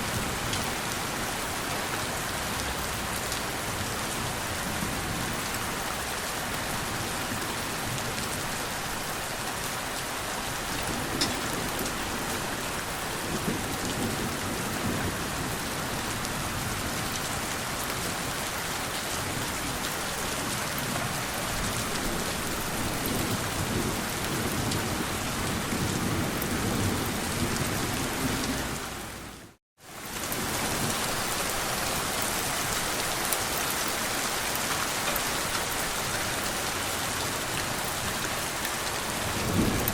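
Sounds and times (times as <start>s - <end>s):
steady rain falling: 0.0s - 39.9s
low rolling thunder: 39.1s - 39.9s.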